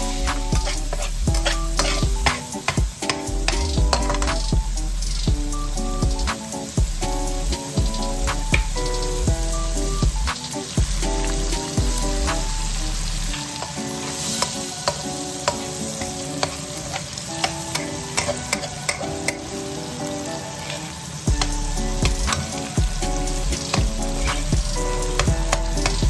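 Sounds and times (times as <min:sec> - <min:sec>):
eggs sizzling in oil: 0:00.0 - 0:26.0
metal spatula tapping pan: 0:14.4 - 0:19.4.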